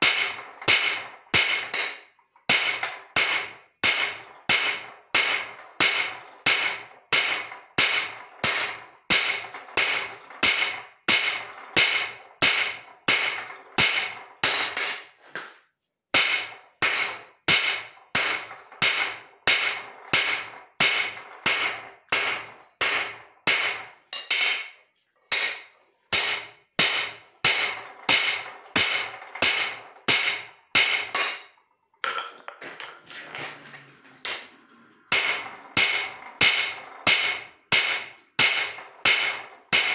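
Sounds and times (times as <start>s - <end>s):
hammer striking steel on anvil: 0.0s - 15.5s, 16.2s - 32.9s, 35.1s - 39.9s.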